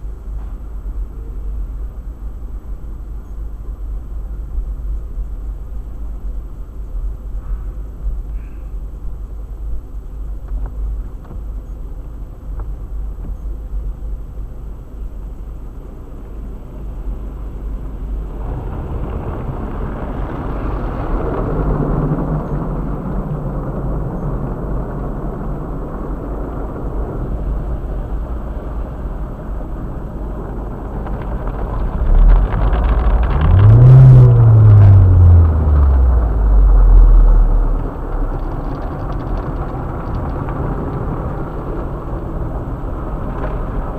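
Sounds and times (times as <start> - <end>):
car engine and road rumble: 0.0 - 43.9
car engine revving: 31.0 - 40.2.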